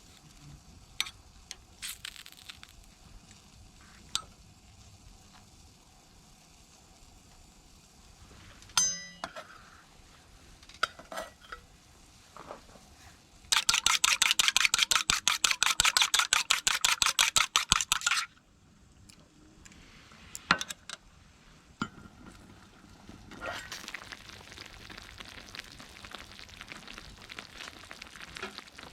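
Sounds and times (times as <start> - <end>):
tableware clinking: 8.8 - 9.5
utensil beating in bowl: 13.5 - 18.2.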